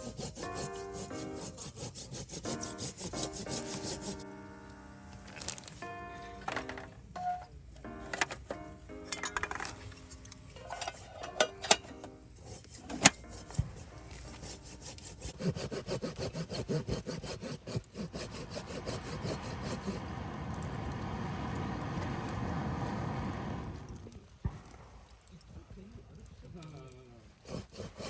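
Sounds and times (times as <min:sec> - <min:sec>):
hand saw cutting wood: 0:00.0 - 0:04.2, 0:10.6 - 0:20.0, 0:27.4 - 0:28.0.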